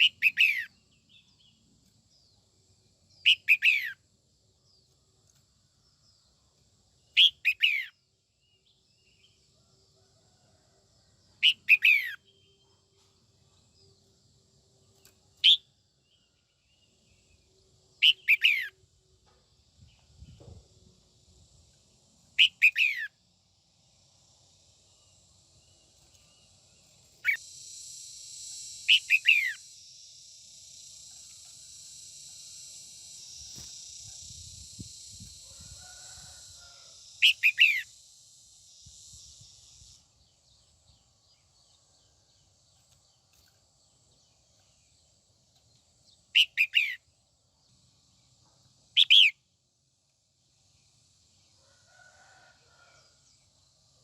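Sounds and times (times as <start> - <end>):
steady high hiss: 20.9 - 45.3.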